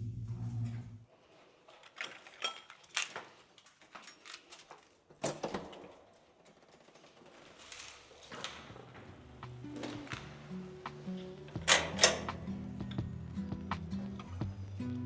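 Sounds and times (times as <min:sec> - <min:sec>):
dishes and cutlery clinking: 0:01.9 - 0:03.2.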